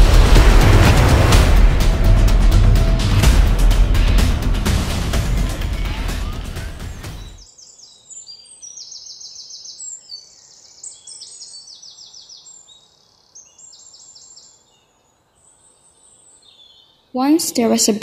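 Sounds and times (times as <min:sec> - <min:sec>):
loud music: 0:00.0 - 0:07.4
small birds trilling: 0:07.0 - 0:17.2.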